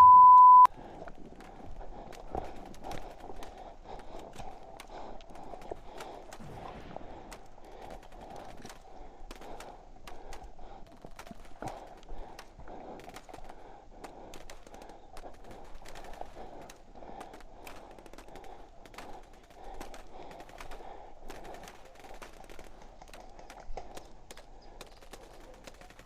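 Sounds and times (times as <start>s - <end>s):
airsoft guns firing: 5.9s - 12.0s.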